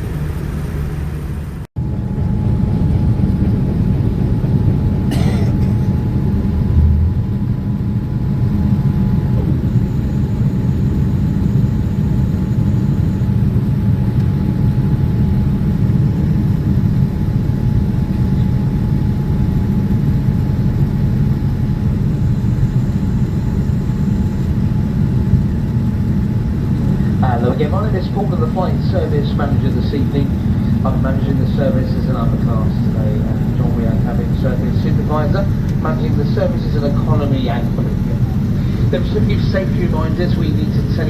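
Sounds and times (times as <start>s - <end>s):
jet engine and airflow rumble: 0.0s - 41.0s
thin engine whine: 0.0s - 41.0s.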